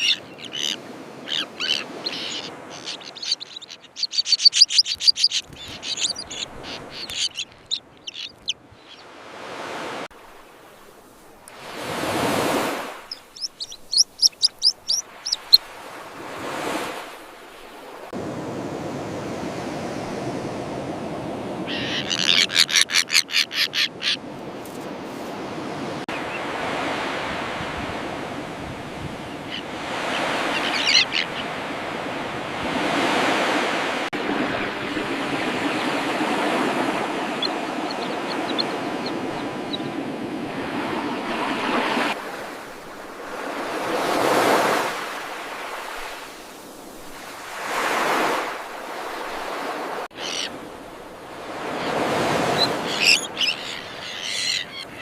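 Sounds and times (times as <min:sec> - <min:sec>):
terns calling: 0:00.0 - 0:09.3, 0:11.5 - 0:17.1, 0:21.6 - 0:24.3, 0:29.4 - 0:31.6, 0:35.6 - 0:40.9, 0:50.1 - 0:50.7, 0:51.4 - 0:55.0
steady surf: 0:00.0 - 0:22.8, 0:23.8 - 0:55.0.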